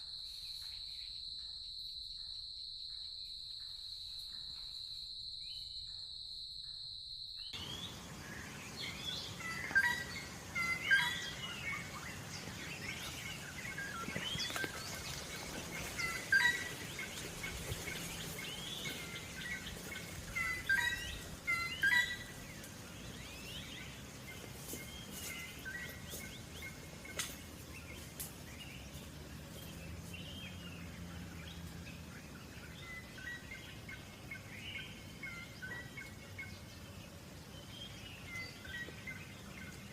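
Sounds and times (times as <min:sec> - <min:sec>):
high-pitched insect trill: 0:00.0 - 0:08.0
forest ambience hiss: 0:00.0 - 0:39.9
birds chirping: 0:07.4 - 0:39.9.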